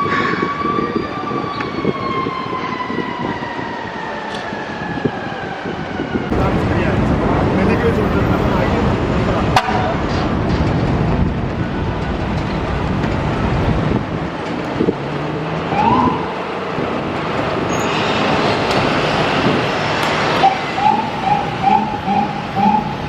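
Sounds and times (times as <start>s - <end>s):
fire engine siren: 0.0s - 6.6s, 15.6s - 17.0s, 18.0s - 23.0s
traffic and engine noise: 0.0s - 23.0s.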